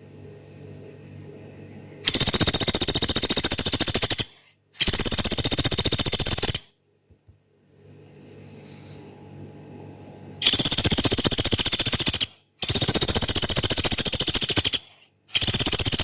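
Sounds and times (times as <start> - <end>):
faint steady hum: 0.0 - 16.0
woodpecker rattling trills: 2.1 - 6.6, 10.4 - 16.0.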